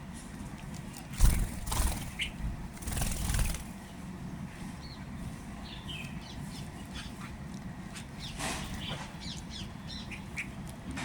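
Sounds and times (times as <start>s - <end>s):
birds flapping wings: 1.1s - 3.8s.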